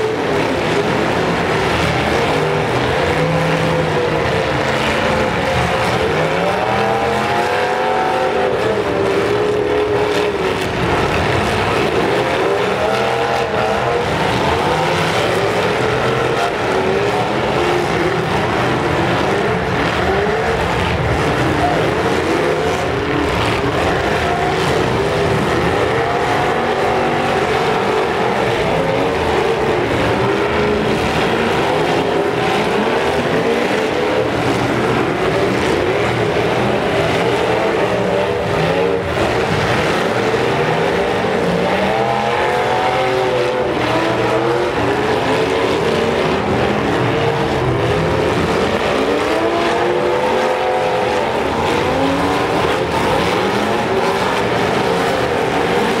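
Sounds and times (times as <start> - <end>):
car engines revving hard: 0.0 - 56.0.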